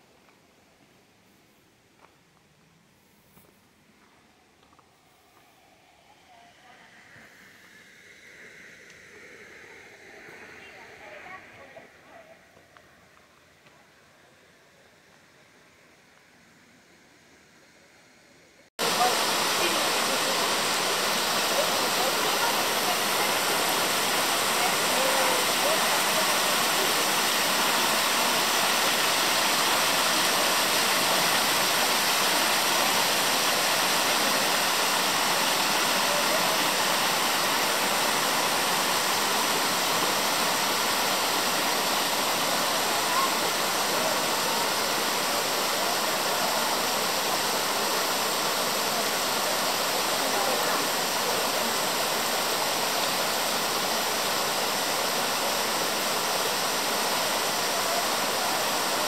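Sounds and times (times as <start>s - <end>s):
waterfall roaring: 18.8s - 59.0s.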